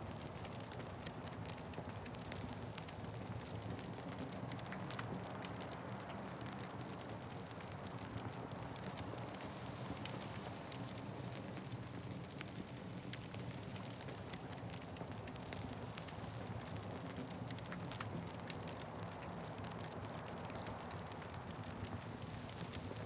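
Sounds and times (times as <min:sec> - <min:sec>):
wood fire crackling: 0:00.2 - 0:23.0.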